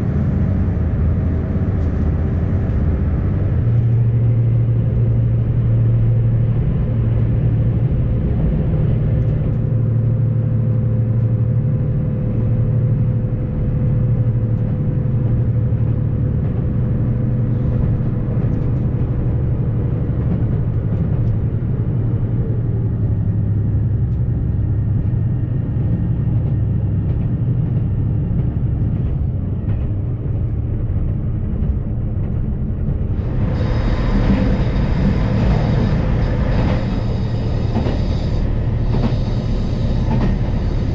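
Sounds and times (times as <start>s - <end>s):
diesel railcar engine hum: 0.0s - 40.9s
wheels rumbling on rail: 0.0s - 40.9s
hissing rail noise: 33.1s - 40.9s.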